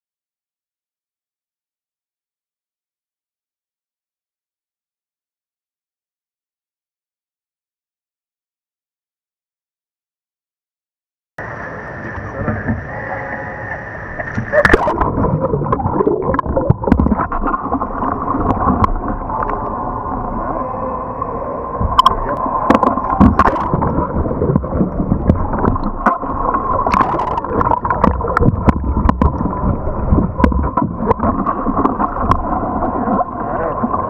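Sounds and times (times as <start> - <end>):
water churning and gurgling: 11.4 - 34.0
kayak knocks and splashes: 21.8 - 32.6.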